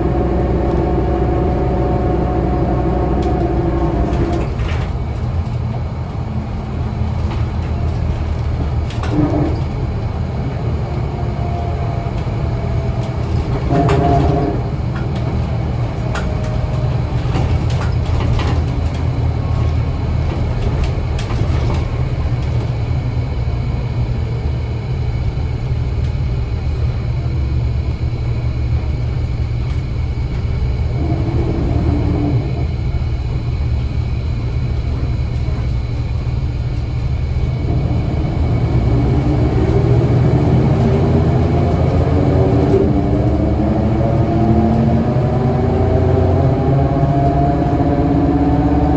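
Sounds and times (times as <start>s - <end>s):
bus engine and road rumble: 0.0s - 48.9s
rattles and clicks: 0.1s - 23.2s.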